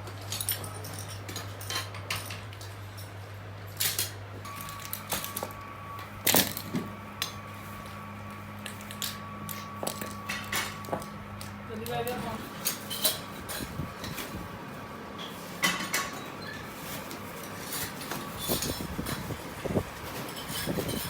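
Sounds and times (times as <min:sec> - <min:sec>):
steady low hum: 0:00.0 - 0:21.0
thin steady whine: 0:04.4 - 0:21.0.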